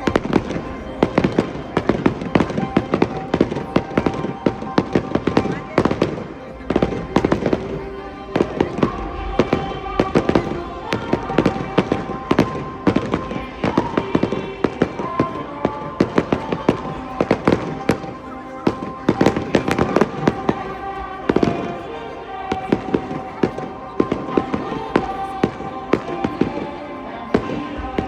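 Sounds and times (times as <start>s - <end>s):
fireworks bangs and crackling: 0.0s - 20.7s
music playing: 0.0s - 28.0s.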